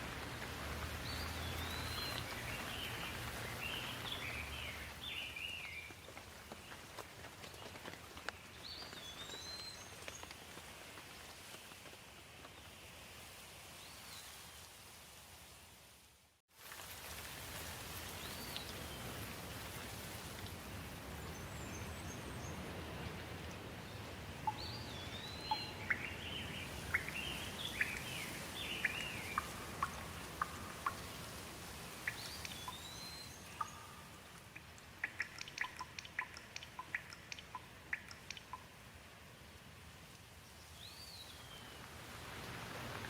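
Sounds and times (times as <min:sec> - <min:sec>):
birds chirping: 0:00.0 - 0:06.0, 0:21.2 - 0:38.7
steady rainfall: 0:00.0 - 0:13.8, 0:14.6 - 0:43.0.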